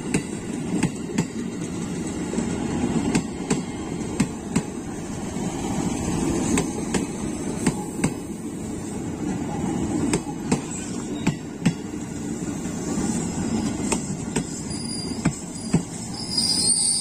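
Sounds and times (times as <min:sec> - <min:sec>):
train rolling rumble: 0:00.0 - 0:17.0
train wheels clacking over rail joint: 0:13.6 - 0:16.0.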